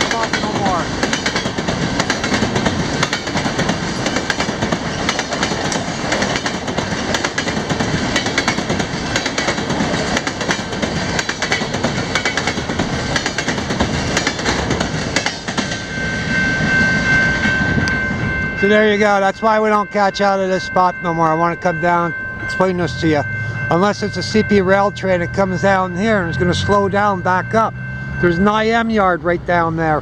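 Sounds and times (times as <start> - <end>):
wheels clicking over rail joints: 0.0 - 23.0
train wheels rumbling on rail: 0.0 - 30.0.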